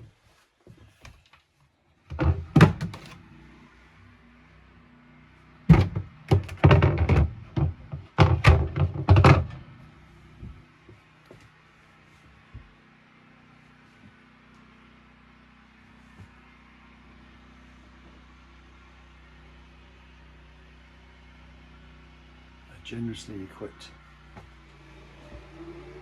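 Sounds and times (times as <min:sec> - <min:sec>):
hollow wooden thunks and knocks: 0:02.1 - 0:03.2, 0:05.7 - 0:09.8, 0:10.4 - 0:10.6.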